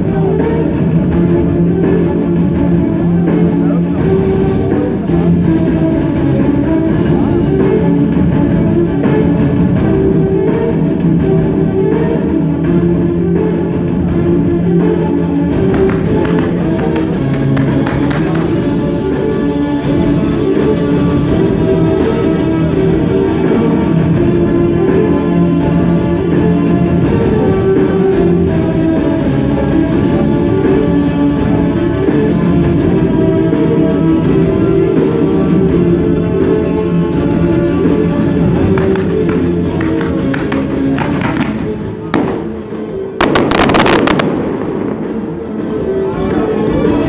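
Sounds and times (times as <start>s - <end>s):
music: 0.0s - 47.0s
fireworks bangs and crackling: 15.6s - 18.9s, 38.7s - 45.8s.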